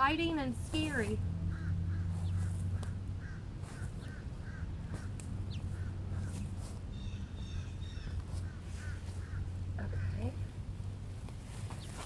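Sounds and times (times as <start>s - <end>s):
steady low hum: 0.0s - 12.0s
bird calling: 1.4s - 10.5s
high bird chirps: 1.6s - 8.2s.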